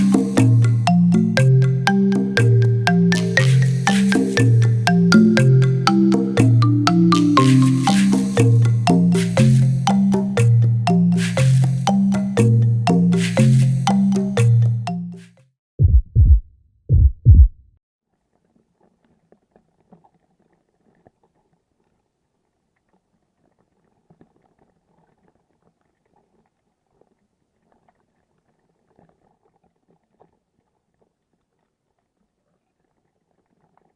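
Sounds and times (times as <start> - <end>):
heartbeat thumps: 15.8 - 17.7.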